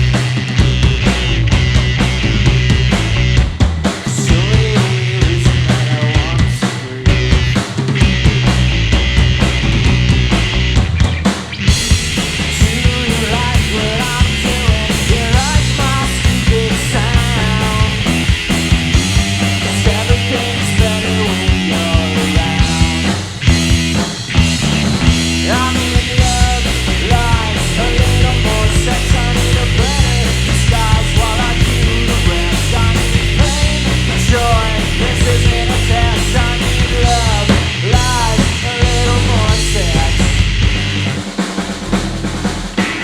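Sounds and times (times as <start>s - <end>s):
bass guitar: 0.0s - 43.0s
drum kit: 0.0s - 43.0s
electric guitar lead lines: 0.0s - 43.0s.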